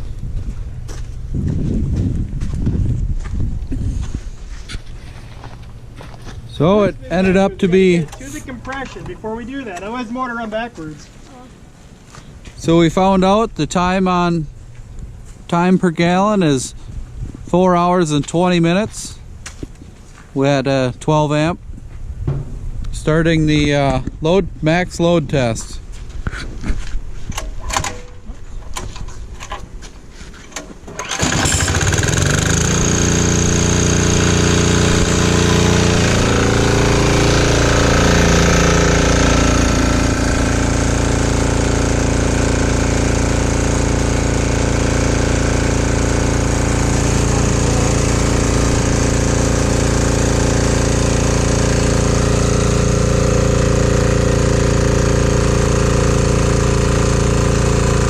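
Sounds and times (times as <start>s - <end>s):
diesel generator engine running: 0.0s - 10.9s, 30.8s - 58.0s
slow knocks: 22.2s - 22.7s.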